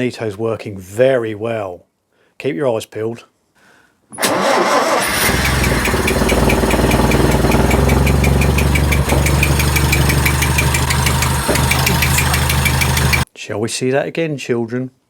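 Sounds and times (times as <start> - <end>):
car engine starting and running: 4.2 - 13.3
light regular ticking: 5.2 - 13.3.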